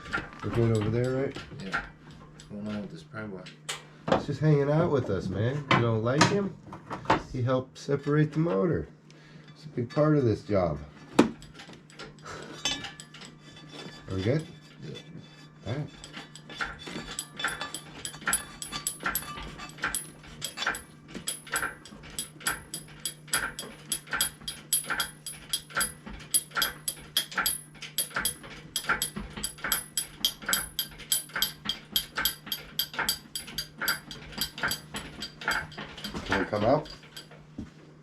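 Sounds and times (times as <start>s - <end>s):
steady low hum: 0.0s - 38.0s
hydraulic hoist pump clicking and squeaking: 11.3s - 37.4s.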